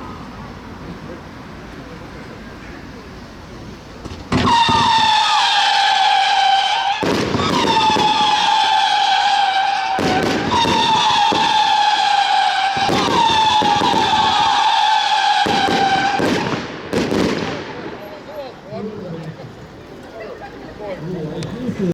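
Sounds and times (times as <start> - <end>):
fireworks launch bangs: 4.0 - 18.3
fireworks whistling: 4.0 - 18.6.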